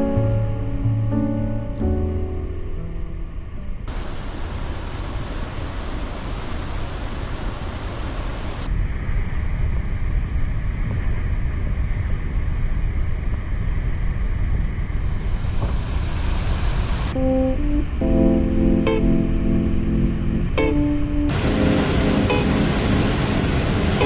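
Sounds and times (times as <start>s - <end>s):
waterfall roaring: 3.9s - 8.7s, 21.3s - 24.0s.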